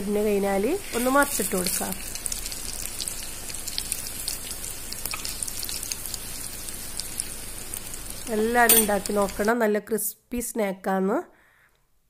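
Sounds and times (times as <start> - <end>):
snacks sizzling in hot oil: 0.0 - 9.6.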